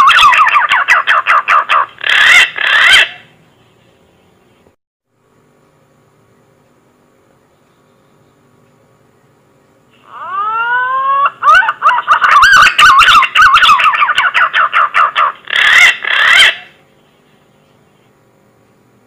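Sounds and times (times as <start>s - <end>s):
pigeon whistling call: 0.0s - 3.2s, 10.1s - 16.7s.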